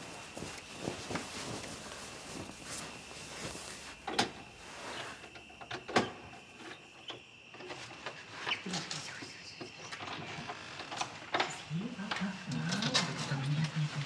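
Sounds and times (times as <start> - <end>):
bedclothes rustling: 0.0 - 6.3.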